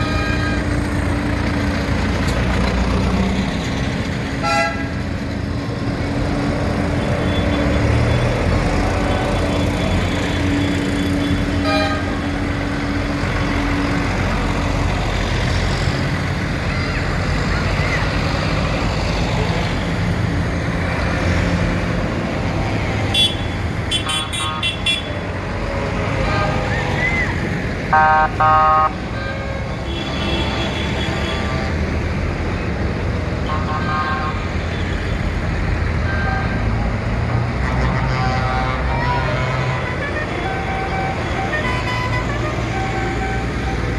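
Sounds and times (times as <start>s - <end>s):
tractor diesel engines rumbling: 0.0s - 43.9s
horn toots: 27.9s - 31.8s.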